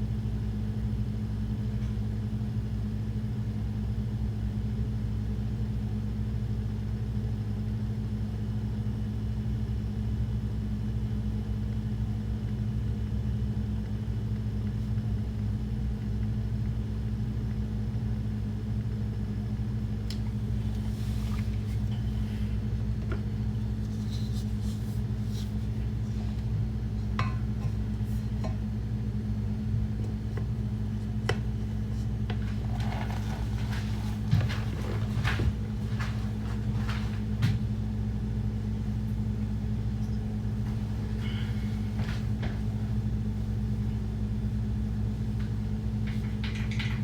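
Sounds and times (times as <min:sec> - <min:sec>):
low machine hum: 0:00.0 - 0:47.0.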